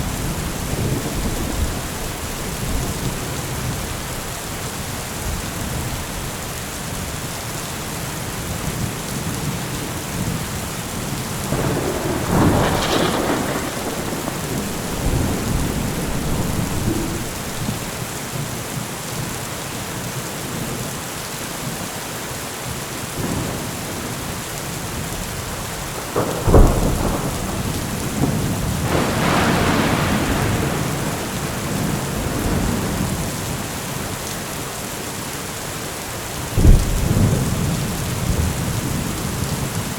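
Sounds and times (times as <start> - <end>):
rolling thunder: 0.0 - 4.2, 11.1 - 18.0, 25.8 - 33.6, 36.6 - 39.7
heavy rain: 0.0 - 39.9
sharp thunderclap: 11.5 - 17.9, 26.0 - 33.3, 36.6 - 39.1.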